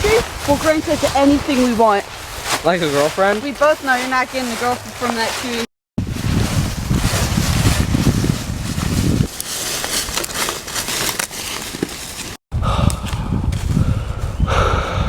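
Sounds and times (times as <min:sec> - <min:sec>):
wind buffeting microphone: 0:00.0 - 0:09.4, 0:12.5 - 0:15.0
footsteps on dry forest ground: 0:00.0 - 0:14.4.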